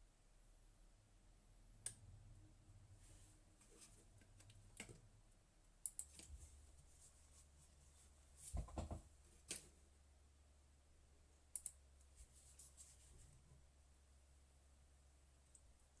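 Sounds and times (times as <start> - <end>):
faint low hum: 0.0 - 16.0
faint sharp clicks: 11.5 - 11.8.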